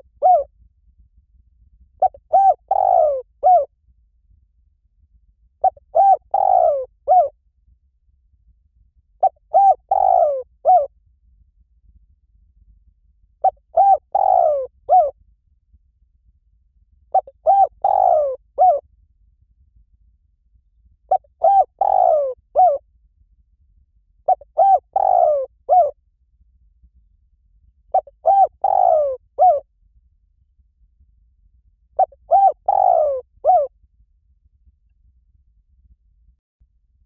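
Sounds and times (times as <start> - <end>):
dove cooing: 0.0 - 0.5, 2.0 - 3.7, 5.6 - 7.3, 9.2 - 10.9, 13.4 - 15.2, 17.1 - 18.8, 21.1 - 22.8, 24.3 - 26.0, 27.9 - 29.6, 32.0 - 33.7.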